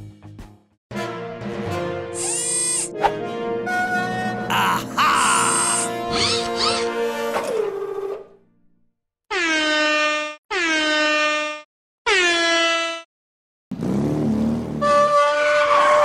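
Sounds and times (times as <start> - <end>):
music: 0.0 - 8.8.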